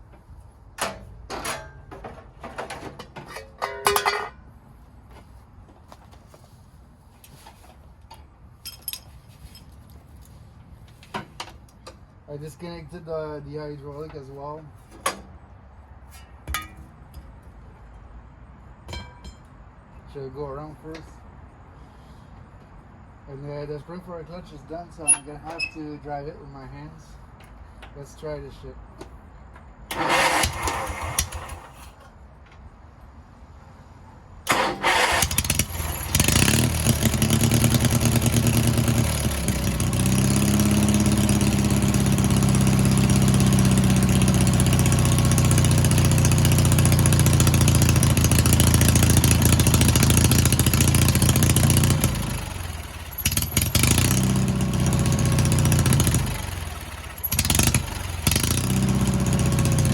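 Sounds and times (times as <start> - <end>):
small engine running: 29.9 - 31.8, 34.5 - 59.9
small gasoline engine cranking: 29.9 - 31.8, 34.5 - 59.9.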